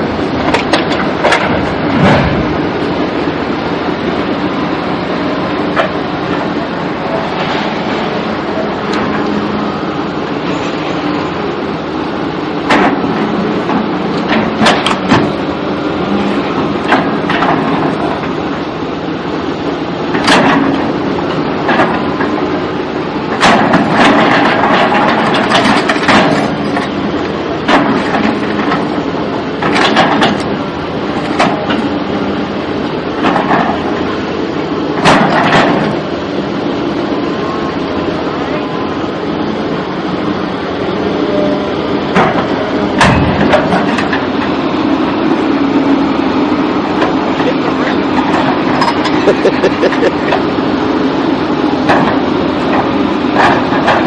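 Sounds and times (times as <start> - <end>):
vehicle rumbling: 0.0 - 54.0
sharp knocks and bangs: 0.5 - 2.7, 42.1 - 44.5.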